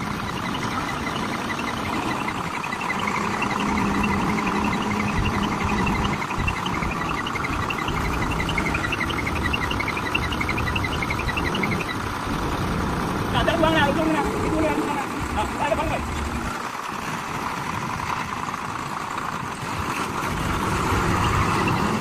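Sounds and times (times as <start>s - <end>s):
insects chirping: 0.0s - 12.0s
vehicle engine running: 0.0s - 22.0s.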